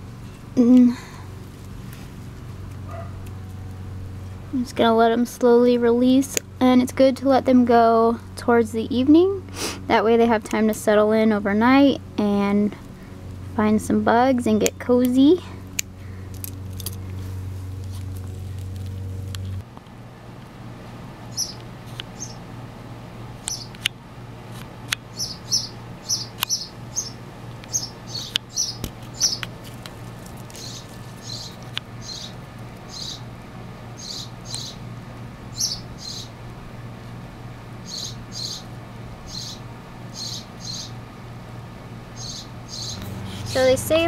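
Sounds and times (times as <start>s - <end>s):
small bird chirping: 21.3s - 22.4s, 23.4s - 23.8s, 25.1s - 29.5s, 30.4s - 33.3s, 34.0s - 34.8s, 35.5s - 36.4s, 37.8s - 38.7s, 39.3s - 41.0s, 42.1s - 43.8s.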